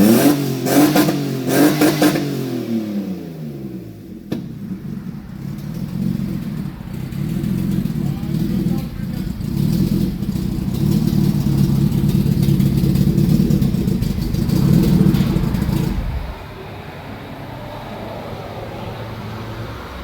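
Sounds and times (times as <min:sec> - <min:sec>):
car engine running loud: 0:00.0 - 0:20.0
low hum: 0:03.6 - 0:18.9.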